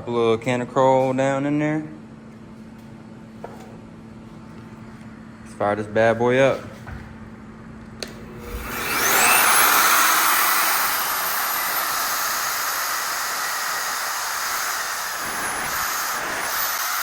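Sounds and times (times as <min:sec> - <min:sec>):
magnetic drill boring steel: 0:08.4 - 0:17.0.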